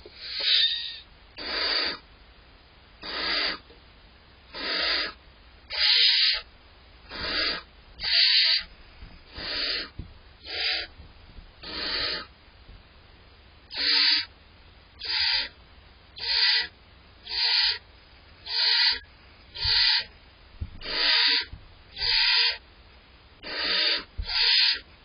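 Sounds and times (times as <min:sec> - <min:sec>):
owlets rasping hissing calls: 0:00.1 - 0:02.0, 0:03.0 - 0:03.7, 0:04.5 - 0:06.5, 0:07.1 - 0:08.7, 0:09.3 - 0:10.9, 0:11.6 - 0:12.3, 0:13.7 - 0:14.3, 0:15.0 - 0:15.6, 0:16.2 - 0:17.8, 0:18.4 - 0:20.1, 0:20.8 - 0:22.6, 0:23.4 - 0:24.9.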